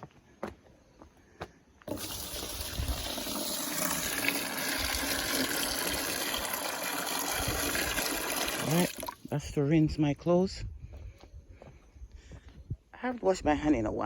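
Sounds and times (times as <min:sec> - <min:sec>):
water gushing into bucket: 0:01.9 - 0:09.3.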